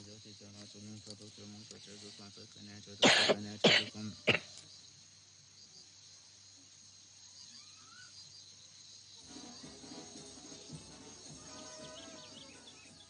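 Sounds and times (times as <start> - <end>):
crickets chirring: 0.0 - 13.0
child coughing: 3.0 - 4.4.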